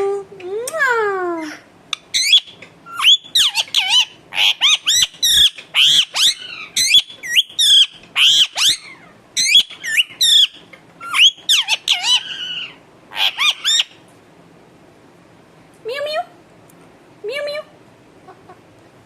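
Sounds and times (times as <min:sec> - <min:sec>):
parrot squawking and chirping: 0:01.4 - 0:14.0.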